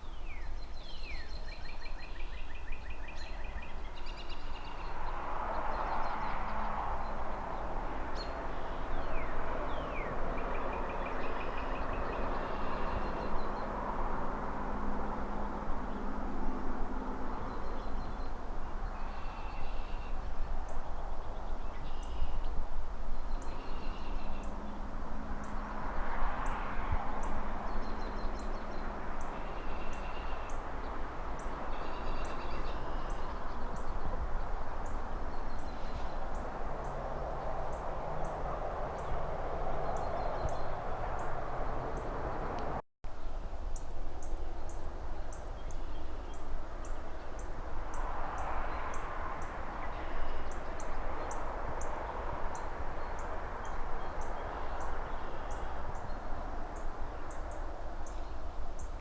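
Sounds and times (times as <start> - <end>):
cars passing: 0.0 - 59.0
distant city traffic hum: 0.0 - 59.0.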